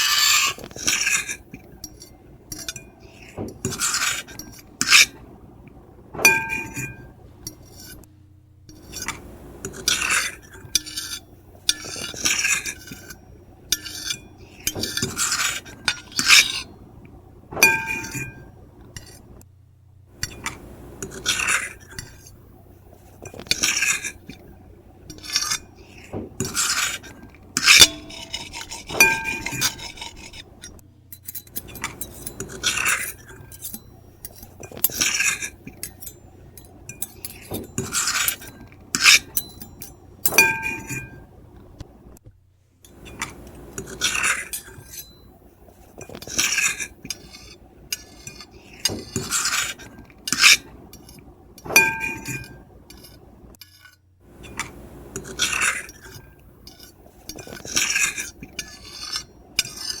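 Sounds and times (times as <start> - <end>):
cutlery squealing on a plate: 0.0 - 5.2, 6.2 - 8.1, 8.8 - 16.7, 17.6 - 18.5, 25.1 - 30.5, 31.2 - 41.2, 51.7 - 53.1, 55.2 - 60.0
fork and knife scraping a plate: 0.0 - 5.3, 6.2 - 8.1, 8.7 - 16.8, 17.6 - 19.3, 20.2 - 41.3, 42.9 - 60.0.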